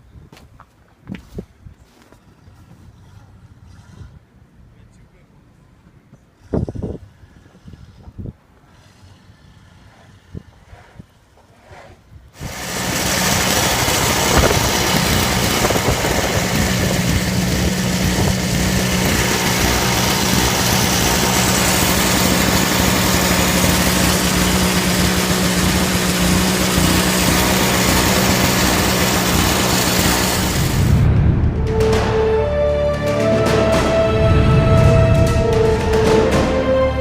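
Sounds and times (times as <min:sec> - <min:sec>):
engine running steadily: 0:12.4 - 0:37.0.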